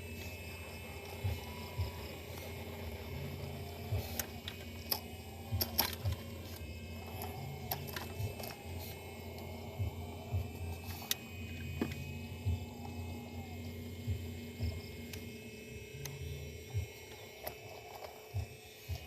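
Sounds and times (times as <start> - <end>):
electric motors and gears whirring: 0.0 - 19.0.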